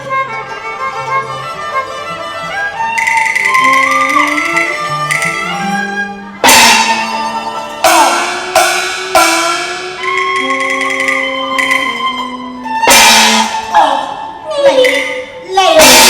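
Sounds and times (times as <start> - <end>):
opera instrumental melody: 0.0 - 16.0
loud percussion strikes: 3.0 - 5.8, 6.4 - 13.7, 14.7 - 16.0.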